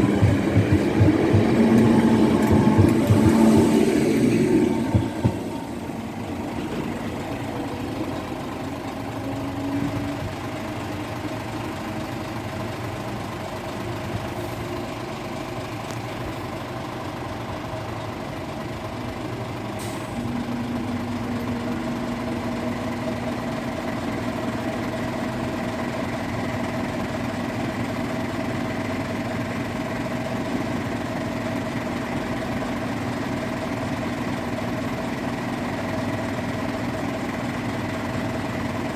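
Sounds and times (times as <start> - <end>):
low drone with higher tone: 0.0 - 10.2
engines idling: 0.0 - 38.9.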